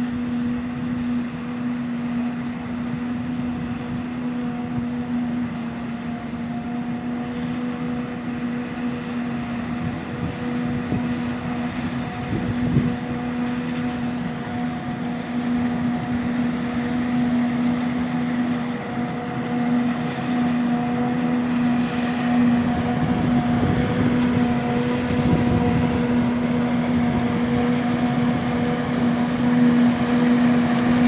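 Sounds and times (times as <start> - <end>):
forage harvester running: 0.0 - 31.0.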